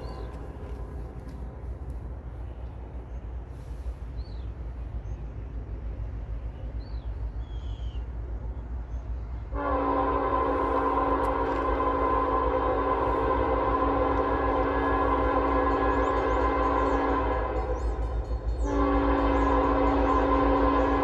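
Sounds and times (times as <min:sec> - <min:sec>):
train rumbling: 0:00.0 - 0:21.0
locomotive air horn blast: 0:09.5 - 0:21.0.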